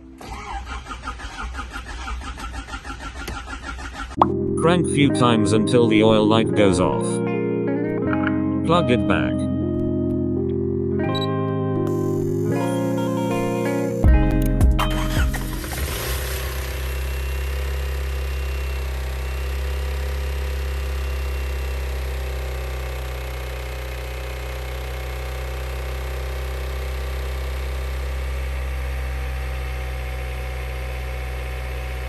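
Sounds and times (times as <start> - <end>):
car engine idling: 14.8 - 32.0.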